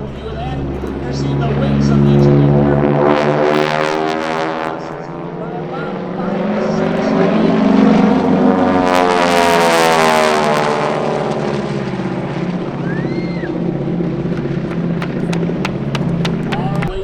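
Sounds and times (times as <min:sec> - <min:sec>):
propeller aircraft passing low: 0:00.0 - 0:17.0.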